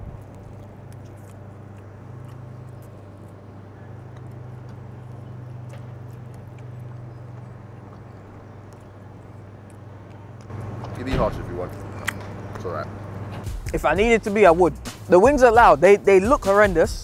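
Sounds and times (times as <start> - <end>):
chewing crunchy chicken wings: 0.0 - 10.5
steady low hum: 0.0 - 15.8.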